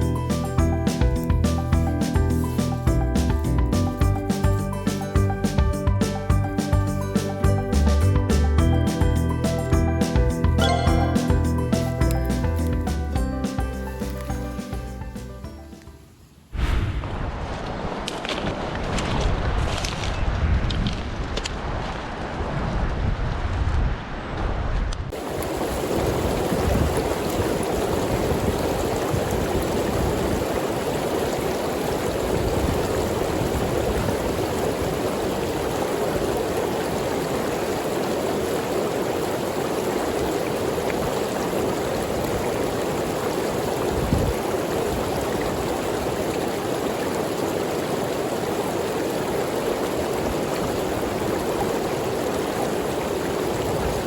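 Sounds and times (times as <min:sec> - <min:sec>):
mountain stream rushing: 0:10.6 - 0:14.9, 0:25.1 - 0:54.0
wind buffeting microphone: 0:16.6 - 0:38.1, 0:39.2 - 0:46.5, 0:47.3 - 0:54.0.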